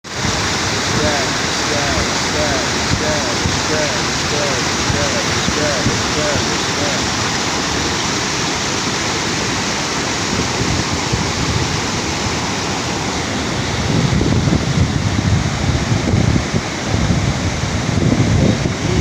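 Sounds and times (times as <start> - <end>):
waterfall rushing: 0.1 - 19.0
wind buffeting microphone: 13.6 - 19.0.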